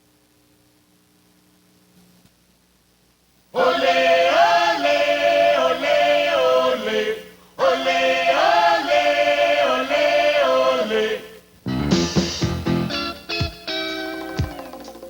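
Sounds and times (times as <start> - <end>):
unaccompanied choir singing: 3.6 - 11.4.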